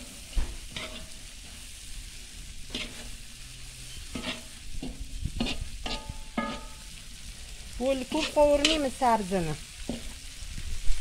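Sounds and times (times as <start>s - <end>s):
food sizzling in hot oil: 0.0s - 11.0s
metal skimmer scraping a pot: 0.7s - 1.2s, 4.1s - 6.8s.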